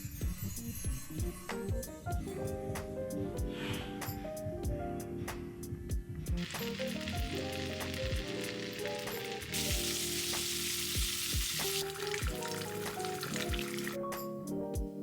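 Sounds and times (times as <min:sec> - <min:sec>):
background music with beat: 0:00.0 - 0:15.0
food sizzling in a pan: 0:06.4 - 0:14.0.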